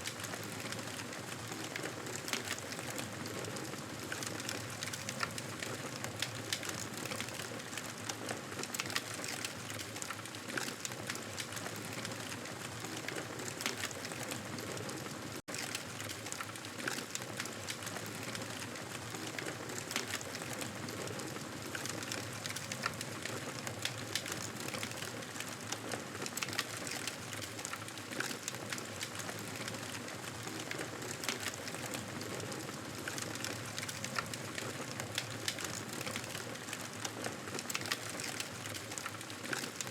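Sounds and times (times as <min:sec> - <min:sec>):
campfire crackling: 0:15.5 - 0:39.9.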